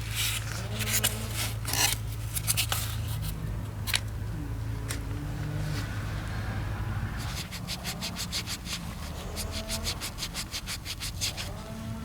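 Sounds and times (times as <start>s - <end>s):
rapid scraping strokes: 7.2s - 11.6s.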